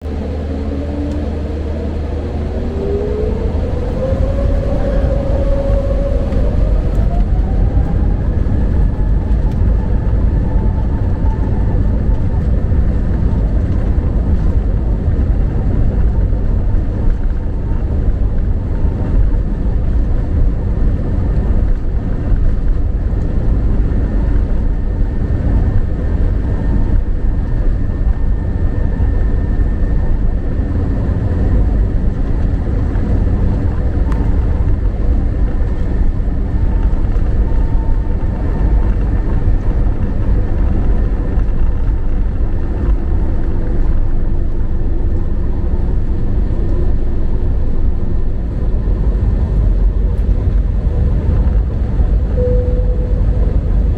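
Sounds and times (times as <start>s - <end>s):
jet engines and airflow rumble: 0.0s - 53.9s
faint steady tones: 52.3s - 53.9s.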